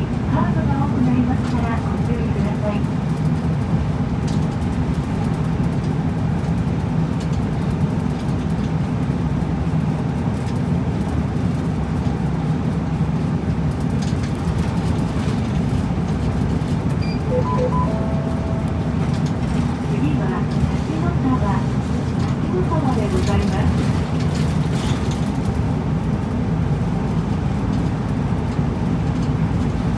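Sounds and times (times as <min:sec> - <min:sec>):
bus engine and road rumble: 0:00.0 - 0:29.9
faint brief tones: 0:17.0 - 0:19.2.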